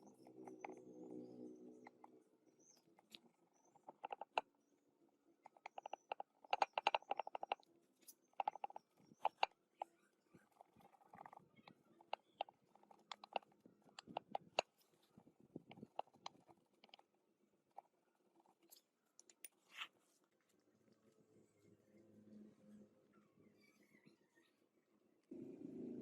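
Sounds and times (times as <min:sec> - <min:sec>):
small hard parts clicking: 0:01.9 - 0:04.5, 0:05.4 - 0:09.6, 0:10.4 - 0:17.1.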